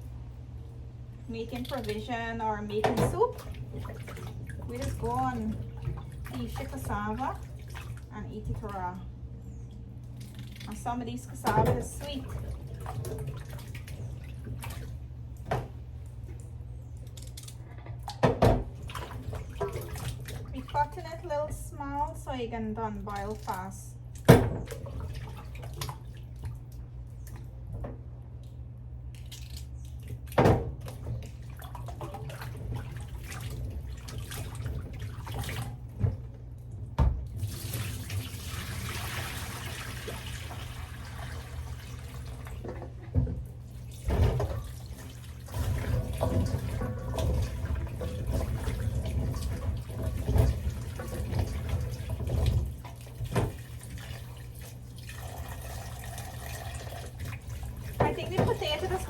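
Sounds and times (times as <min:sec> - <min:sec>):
steady low hum: 0:00.0 - 0:38.7
tap water running into sink: 0:37.0 - 0:59.0.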